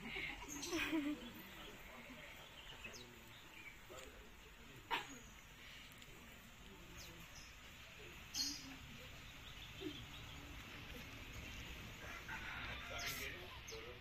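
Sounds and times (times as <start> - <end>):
faint bird chirps: 6.9 - 11.8.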